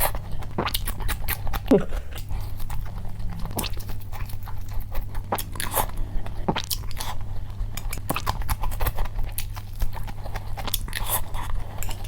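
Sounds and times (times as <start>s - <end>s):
wet mouth sounds: 0.0s - 7.2s
chewing and biting food: 0.0s - 12.0s
steady low hum: 0.0s - 12.0s.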